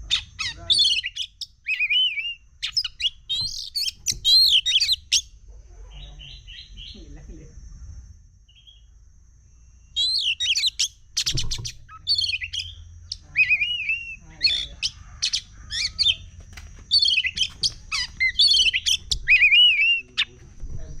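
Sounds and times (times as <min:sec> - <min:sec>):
songbird singing whistles and chatter: 0:00.0 - 0:05.3, 0:09.9 - 0:16.3, 0:16.9 - 0:20.4.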